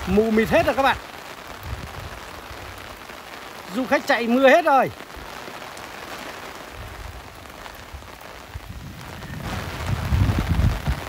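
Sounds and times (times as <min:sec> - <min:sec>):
wind rumbling on microphone: 0:00.0 - 0:03.0, 0:06.6 - 0:11.0
heavy rain falling: 0:00.0 - 0:11.0.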